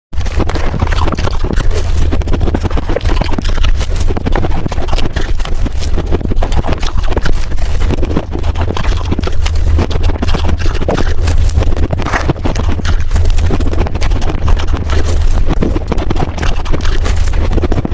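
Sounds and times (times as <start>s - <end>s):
ice being crunched and chewed: 0.2s - 17.9s
low rumble: 0.2s - 17.9s.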